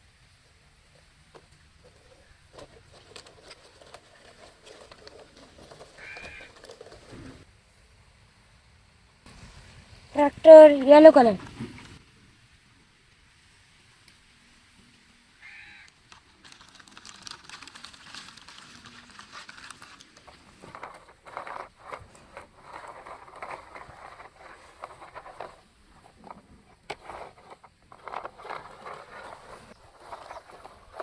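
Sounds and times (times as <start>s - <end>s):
small irregular clicks: 0.4s - 7.4s, 15.4s - 31.0s
toy vehicles scraping in sand: 0.4s - 7.5s, 15.5s - 31.0s.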